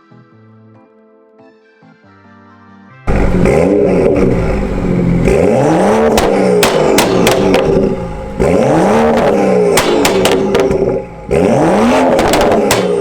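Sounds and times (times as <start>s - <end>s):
car engine revving hard: 3.1s - 13.0s
exhaust pops and cracks: 6.0s - 13.0s.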